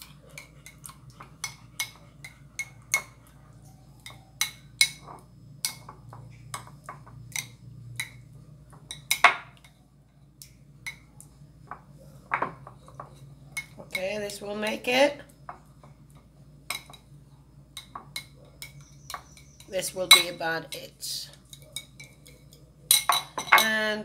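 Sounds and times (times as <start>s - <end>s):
utensil clinking against a plate: 17.8s - 20.8s, 21.4s - 23.9s.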